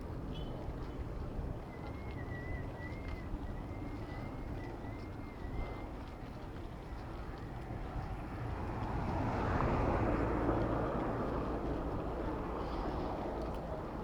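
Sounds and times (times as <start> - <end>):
road noise: 7.0 - 14.0.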